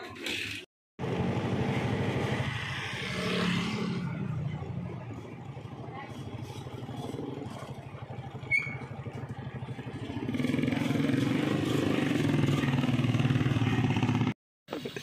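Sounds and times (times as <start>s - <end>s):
motorcycle engine pulsing: 4.3s - 14.3s.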